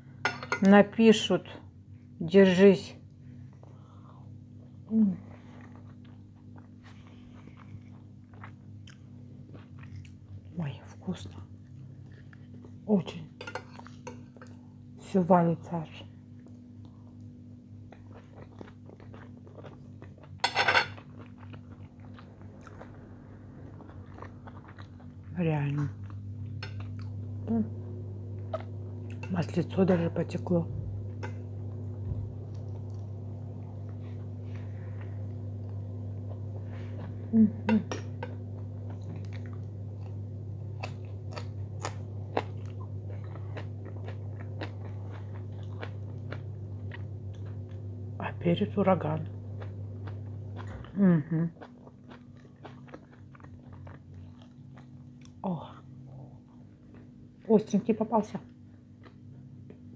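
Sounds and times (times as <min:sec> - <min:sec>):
steady low hum: 0:00.0 - 0:59.9
wet chewing and mouth clicks: 0:17.9 - 0:20.4, 0:21.0 - 0:27.2, 0:38.2 - 0:47.9, 0:49.5 - 0:55.4.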